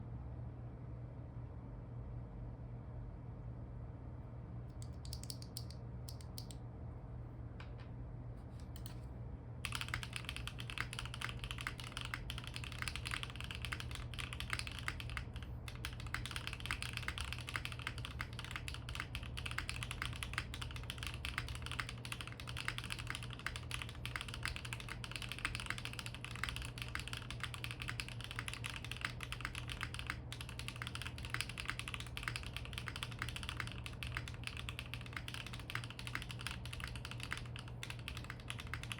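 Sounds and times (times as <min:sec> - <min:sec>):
mechanical keyboard typing: 0:04.8 - 0:06.6, 0:09.6 - 0:38.9.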